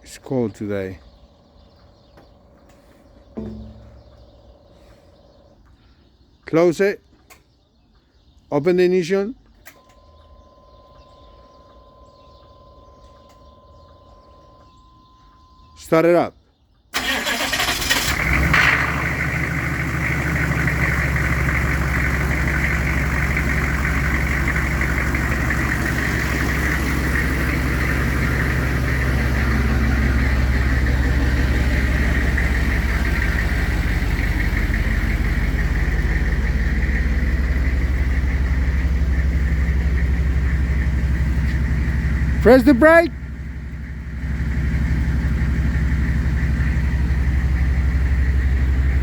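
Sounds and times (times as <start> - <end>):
diesel engine idling: 0.0 - 5.7, 17.0 - 49.0.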